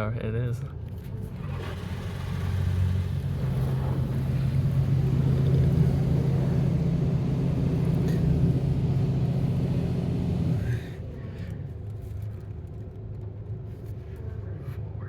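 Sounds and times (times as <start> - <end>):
low mechanical hum: 0.0 - 15.0
quiet low rumble: 0.6 - 15.0.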